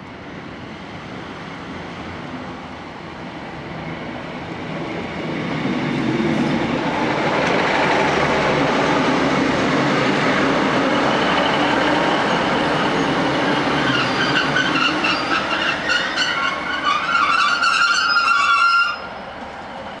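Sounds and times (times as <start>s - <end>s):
train wheels rumbling: 0.4s - 20.0s
high-pitched brake squeal: 10.8s - 19.3s.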